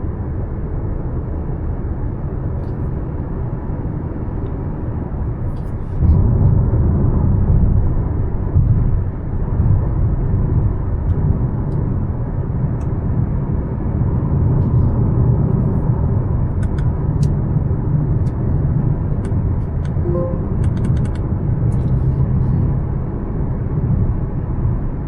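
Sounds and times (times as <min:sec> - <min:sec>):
road and engine rumble: 0:00.0 - 0:25.0
brief short tone: 0:20.0 - 0:21.0.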